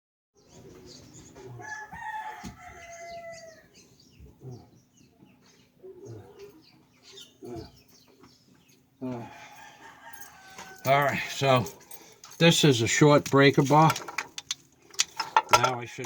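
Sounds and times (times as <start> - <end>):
rooster crowing: 1.6 - 3.7, 9.1 - 11.2.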